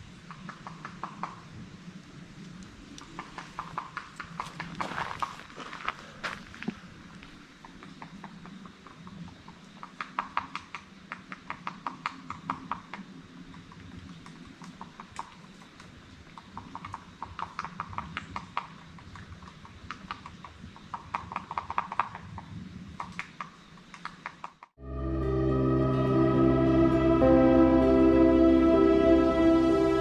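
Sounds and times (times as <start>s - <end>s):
footsteps on dirt and rock: 4.4s - 6.8s.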